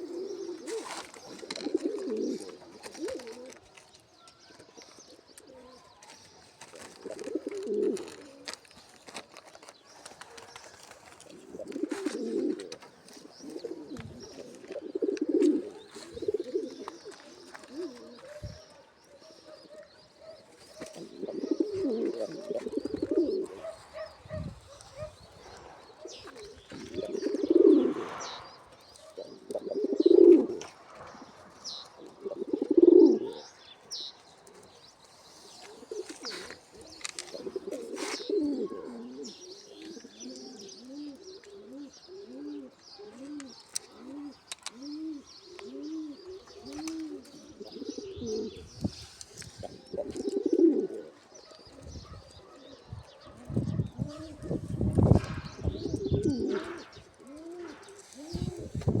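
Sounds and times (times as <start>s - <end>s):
pigeons cooing: 0.0s - 59.0s
small birds chirping: 0.0s - 59.0s.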